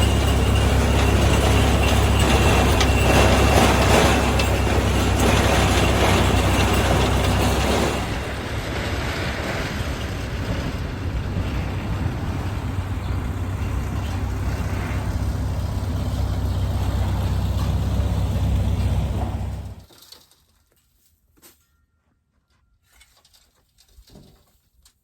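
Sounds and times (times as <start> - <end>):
tractor engine running: 0.0 - 19.9.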